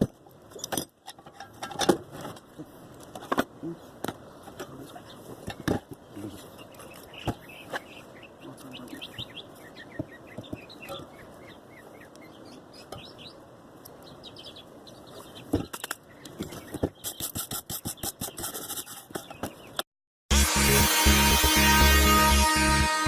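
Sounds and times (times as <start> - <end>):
small birds chirping: 3.6 - 19.8
music: 20.3 - 23.0.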